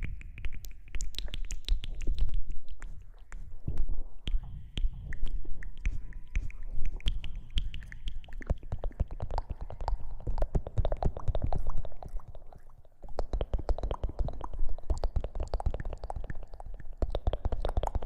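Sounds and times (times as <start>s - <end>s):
rustling and rubbing on microphone: 0.0s - 7.7s
crackles and taps: 0.0s - 18.0s.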